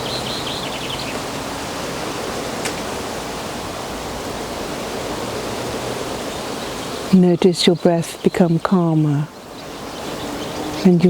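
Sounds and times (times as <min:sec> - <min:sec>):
bird chirping: 0:00.0 - 0:02.5, 0:06.1 - 0:11.0
gentle breeze hiss: 0:00.0 - 0:11.0.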